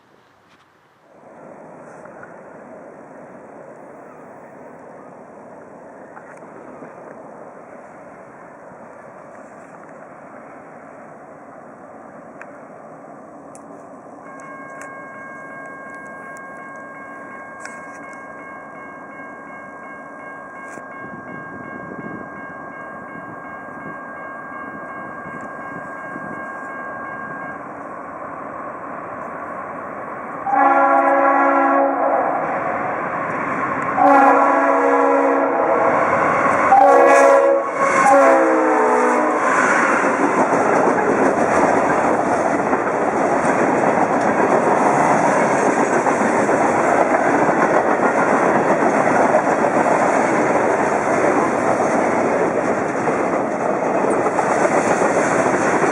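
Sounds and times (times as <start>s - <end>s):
diesel train rumble: 0.0s - 55.9s
train wheel and rail noise: 0.0s - 55.9s
locomotive air horn: 30.4s - 32.6s, 34.0s - 39.6s.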